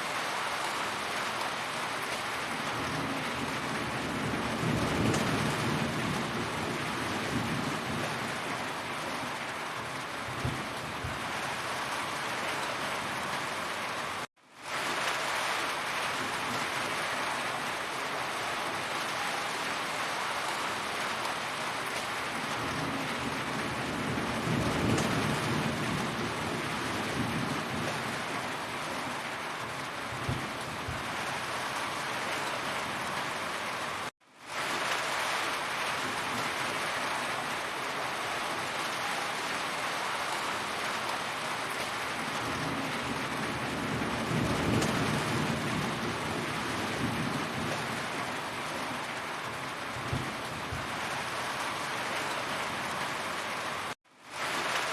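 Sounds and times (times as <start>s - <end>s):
heavy rain falling: 0.0s - 54.9s
distant thunder rumble: 2.5s - 9.3s, 10.2s - 11.7s, 22.3s - 31.5s, 42.2s - 51.3s.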